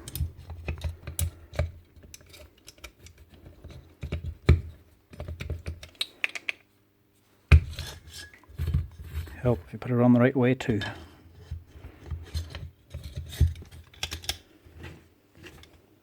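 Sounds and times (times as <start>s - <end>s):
plastic and metal parts clicking: 12.4s - 14.4s.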